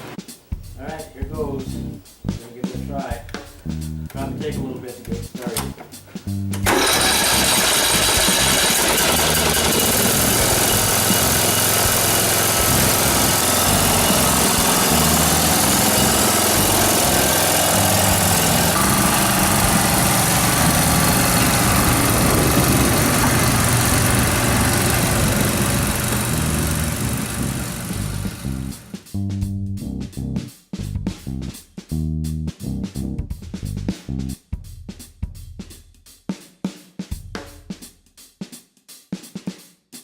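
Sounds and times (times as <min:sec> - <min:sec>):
lawnmower engine running: 0:06.5 - 0:29.0.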